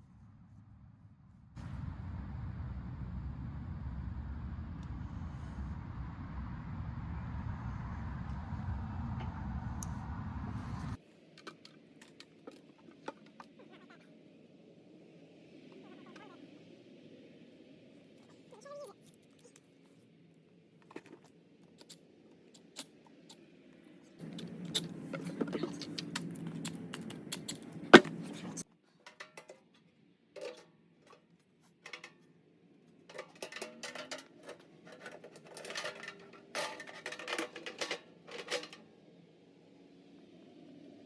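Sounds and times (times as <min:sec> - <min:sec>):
metal parts clanking and rattling: 0:33.1 - 0:38.9.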